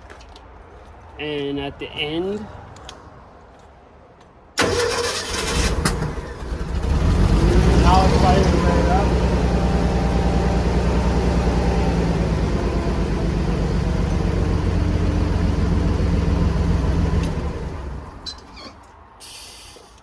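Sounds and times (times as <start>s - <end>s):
drill rig engine running: 5.6s - 18.3s.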